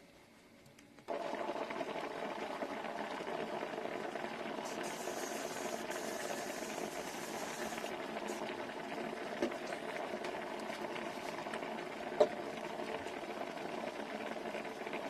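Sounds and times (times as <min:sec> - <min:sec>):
steamer humming and hissing: 0:04.5 - 0:08.6.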